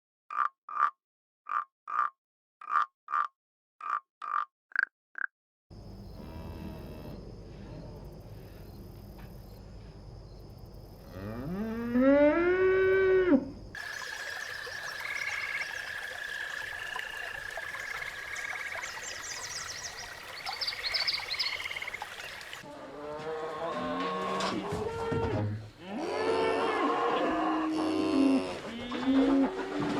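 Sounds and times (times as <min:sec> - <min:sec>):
cow mooing: 0:06.2 - 0:07.2, 0:11.1 - 0:13.5, 0:23.0 - 0:29.3
high trill with chirping calls: 0:13.8 - 0:22.6.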